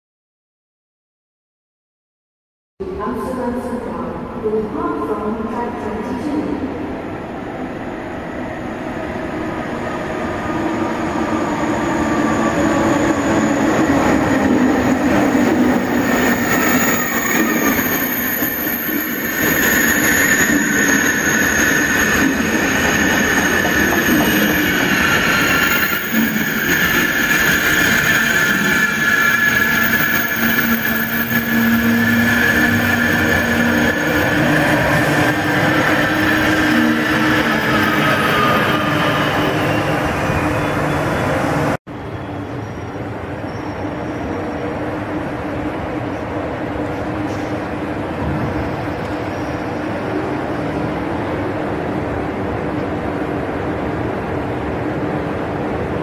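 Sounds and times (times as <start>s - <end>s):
high squeal of brakes: 15.9s - 41.4s, 42.0s - 44.6s, 48.6s - 50.1s.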